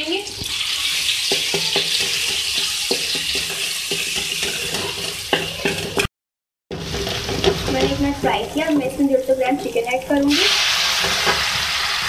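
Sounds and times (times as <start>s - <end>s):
paste sizzling in hot oil: 0.1s - 6.1s, 6.7s - 12.0s
wooden spatula scraping wok: 0.8s - 6.1s, 6.7s - 9.2s, 10.4s - 12.0s.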